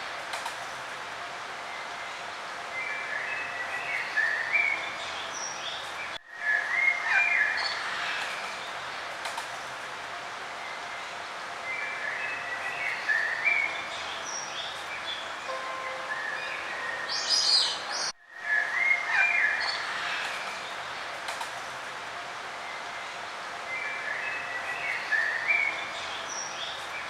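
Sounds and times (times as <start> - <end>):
outdoor ambient hiss: 0.0 - 27.0
songbirds warbling: 11.7 - 20.3.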